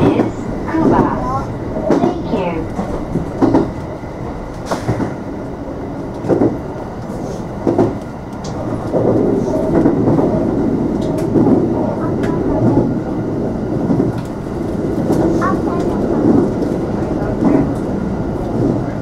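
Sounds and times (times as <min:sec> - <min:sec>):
electric train running rumble: 0:00.0 - 0:19.0.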